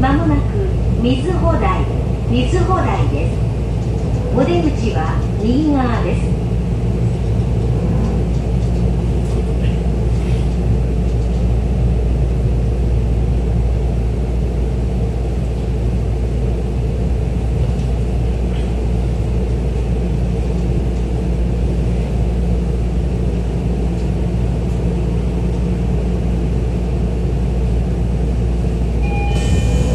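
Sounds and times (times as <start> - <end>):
train wheels rumbling on rails: 0.0 - 29.9.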